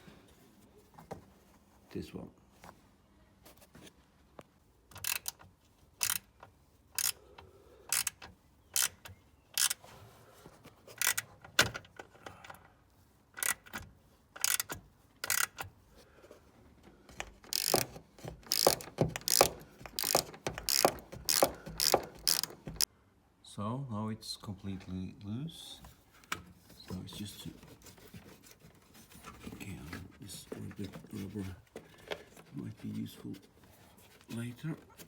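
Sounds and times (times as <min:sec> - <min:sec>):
ratchet wrench clicking: 0:04.9 - 0:05.4, 0:06.0 - 0:06.3, 0:07.0 - 0:07.2, 0:07.9 - 0:09.8, 0:11.0 - 0:11.2, 0:13.4 - 0:13.8, 0:14.4 - 0:15.6, 0:17.5 - 0:22.9.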